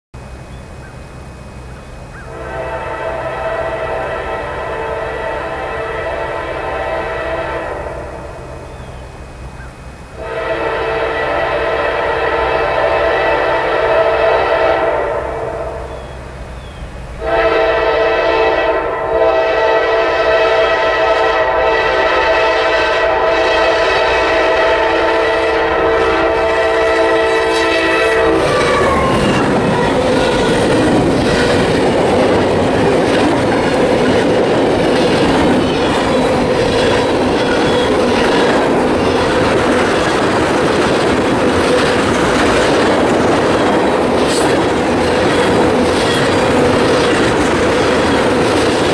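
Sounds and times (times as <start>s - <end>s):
locomotive air horn: 2.2s - 8.7s, 10.1s - 16.0s, 17.2s - 34.3s, 34.9s - 39.8s
train wheels clacking on rails: 24.0s - 48.9s.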